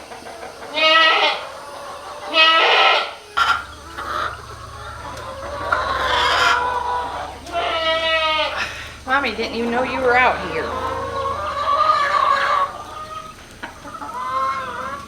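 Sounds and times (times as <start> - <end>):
goats bleating: 2.3 - 15.0
faint low hum: 3.3 - 15.0.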